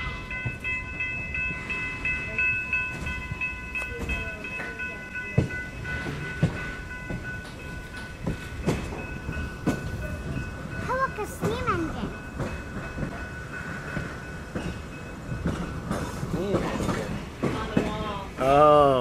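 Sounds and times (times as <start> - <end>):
crossing warning bell ringing: 0.0 - 19.0
train rumbling: 0.0 - 19.0
wheels clunking over rail joints: 0.3 - 18.5.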